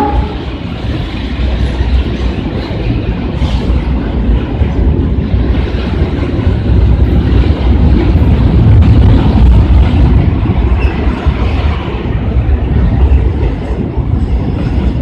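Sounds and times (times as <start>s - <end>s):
train passing rumble: 0.0s - 15.0s
wind buffeting microphone: 0.0s - 15.0s.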